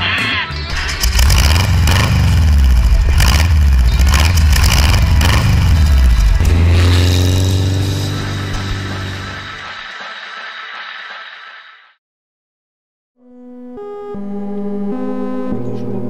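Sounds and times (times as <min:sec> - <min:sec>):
car engine revving: 0:00.7 - 0:10.8.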